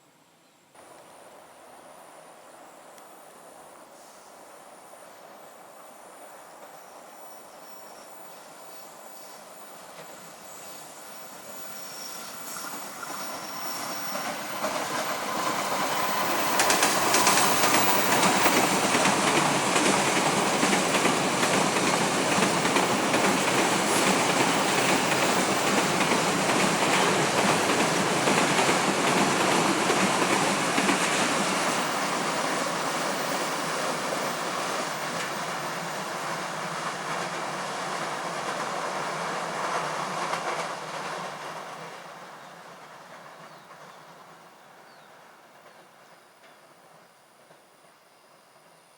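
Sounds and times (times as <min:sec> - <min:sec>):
train passing on rails: 0:00.7 - 0:48.9.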